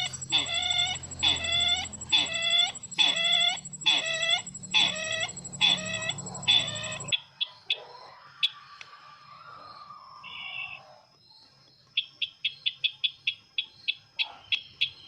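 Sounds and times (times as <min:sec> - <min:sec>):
bird call dipping then rising: 0:00.0 - 0:07.1
low hum: 0:00.0 - 0:07.1
sharp clicks: 0:00.0 - 0:07.1.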